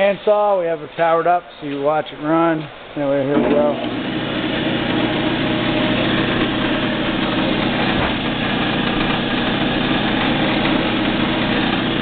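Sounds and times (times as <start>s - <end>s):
band saw running: 3.4s - 12.0s.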